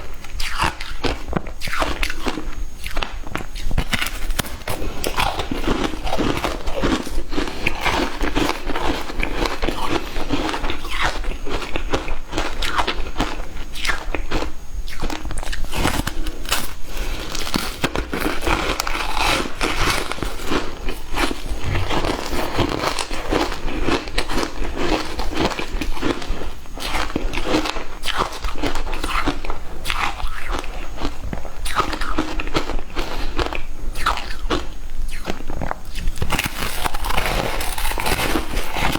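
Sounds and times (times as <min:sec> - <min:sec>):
person crunching frozen ice: 0:15.4 - 0:26.2, 0:36.1 - 0:38.9.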